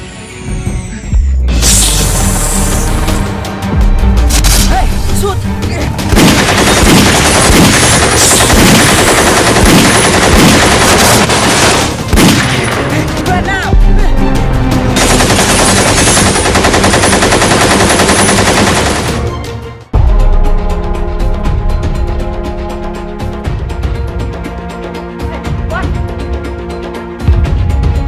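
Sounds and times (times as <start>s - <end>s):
automatic gunfire bursts: 6.1s - 12.7s, 15.0s - 19.1s.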